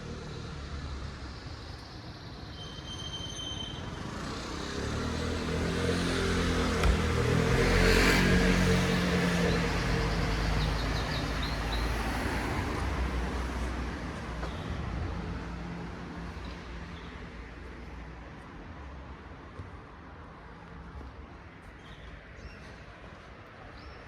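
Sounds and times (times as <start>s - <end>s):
vehicle passing on street: 4.0s - 16.3s.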